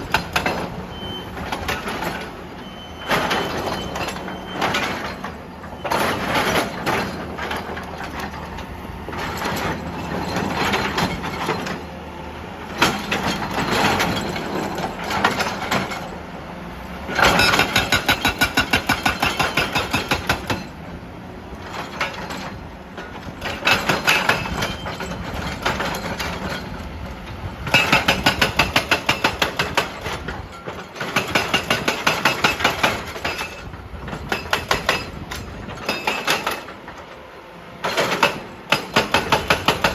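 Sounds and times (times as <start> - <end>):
hydraulic breaker hammering rock: 0.0 - 2.3, 3.0 - 8.5, 12.7 - 16.1, 17.1 - 20.8, 21.6 - 26.9, 27.6 - 37.0, 37.8 - 39.9.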